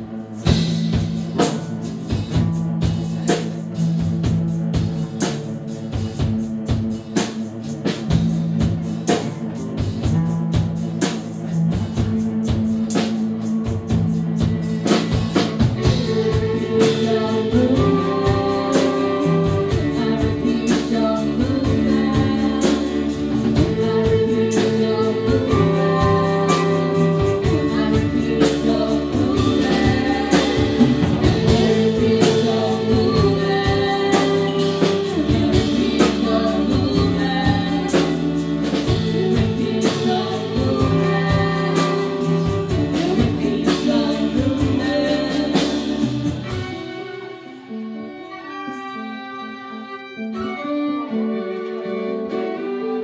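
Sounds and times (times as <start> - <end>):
band instrumental chords: 0.0 - 53.0
person singing: 15.8 - 53.0.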